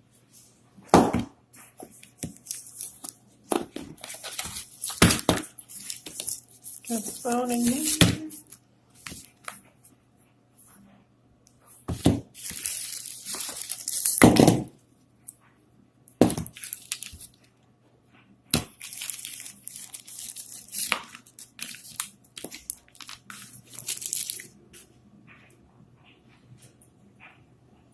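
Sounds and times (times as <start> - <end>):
plastic wrap rustling and tearing: 1.8 - 9.6, 11.9 - 14.7, 16.2 - 17.4, 18.6 - 24.6.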